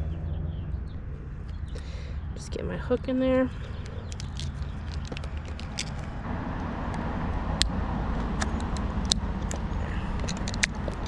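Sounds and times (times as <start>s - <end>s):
low background rumble: 0.0s - 11.0s
metal hook clicking and scraping: 3.6s - 6.2s, 8.4s - 11.0s.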